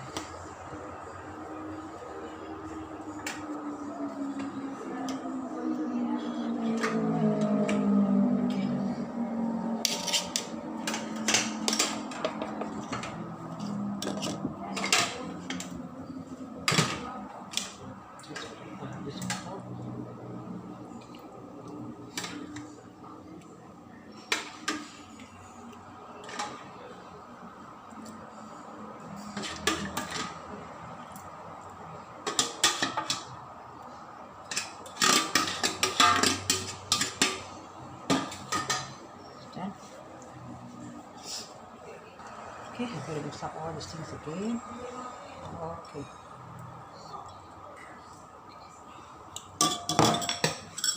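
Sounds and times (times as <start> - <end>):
metal spoon scraping cooking pot: 9.8 - 12.0.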